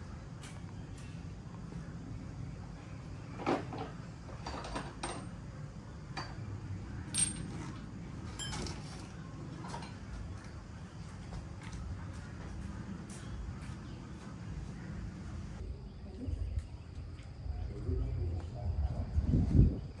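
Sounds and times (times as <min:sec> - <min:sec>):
metal tools knocking and clinking: 0:03.4 - 0:05.4, 0:06.1 - 0:06.5, 0:07.1 - 0:10.1.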